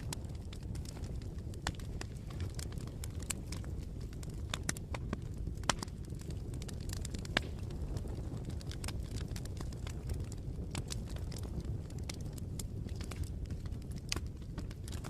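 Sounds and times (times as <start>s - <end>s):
burning wood crackling and popping: 0.0s - 15.0s
low rumble of flames: 0.0s - 15.0s.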